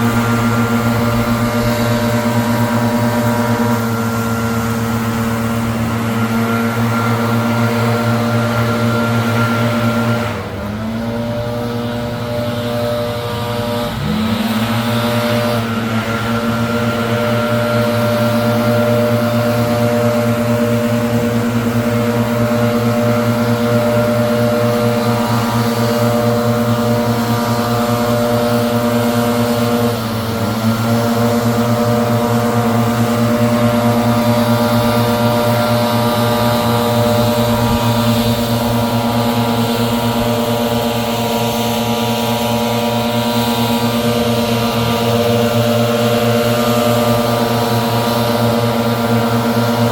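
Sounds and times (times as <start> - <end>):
leaf blower engine running: 0.0 - 49.9.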